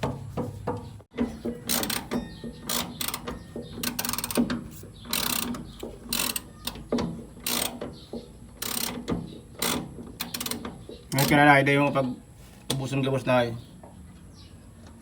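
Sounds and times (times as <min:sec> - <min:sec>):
ratchet wrench clicking: 0:01.6 - 0:06.8, 0:07.4 - 0:07.9, 0:08.6 - 0:11.3.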